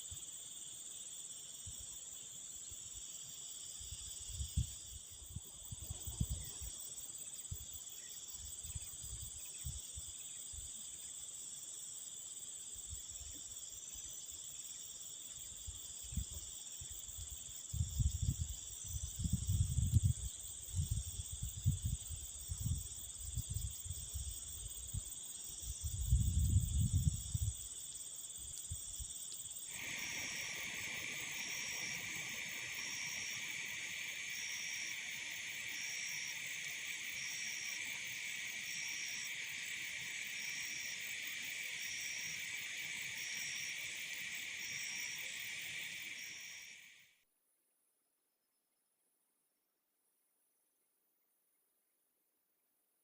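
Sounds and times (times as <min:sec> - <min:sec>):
crickets chirping: 0:00.0 - 0:47.2
wind gusting on microphone: 0:17.7 - 0:24.0, 0:25.8 - 0:27.6.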